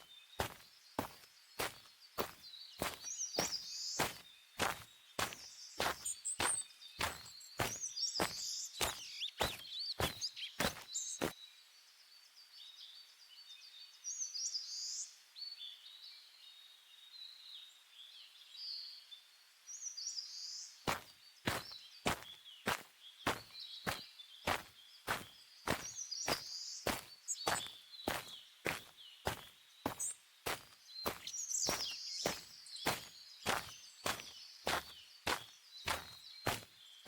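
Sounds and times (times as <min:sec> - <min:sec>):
birds chirping: 0:00.0 - 0:11.4, 0:19.8 - 0:37.0
footsteps walking: 0:00.0 - 0:11.4, 0:20.9 - 0:36.7.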